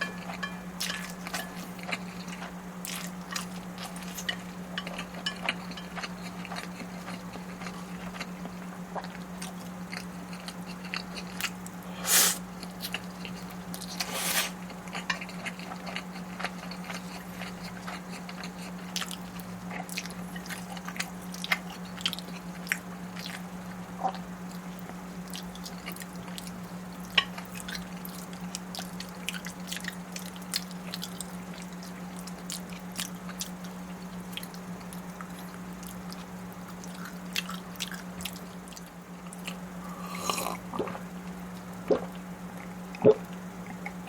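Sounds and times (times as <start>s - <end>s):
steady low hum: 0.0s - 44.0s
chewing and biting: 14.7s - 24.2s, 24.8s - 41.0s.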